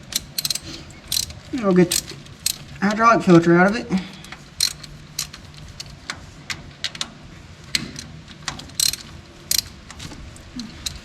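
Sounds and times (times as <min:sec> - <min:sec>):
ratchet wrench clicking: 0:00.0 - 0:02.7, 0:04.6 - 0:06.0, 0:07.8 - 0:11.0.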